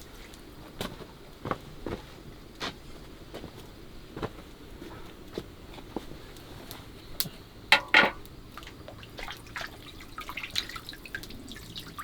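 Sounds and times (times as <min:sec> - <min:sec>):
sharp knocks: 0:07.7 - 0:08.2
water splashing and dripping: 0:08.5 - 0:12.0.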